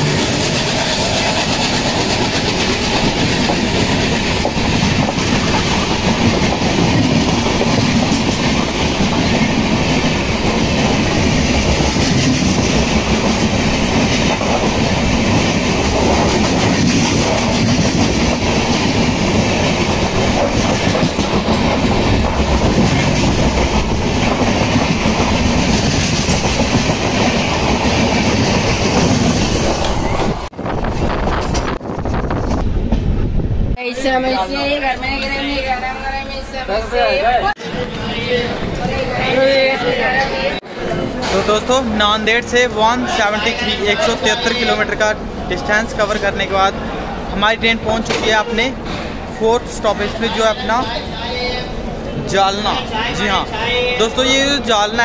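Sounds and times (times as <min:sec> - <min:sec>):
train wheels rumbling on track: 0:00.0 - 0:33.8, 0:37.6 - 0:55.0
wheels clattering over rail joints: 0:40.8 - 0:42.5.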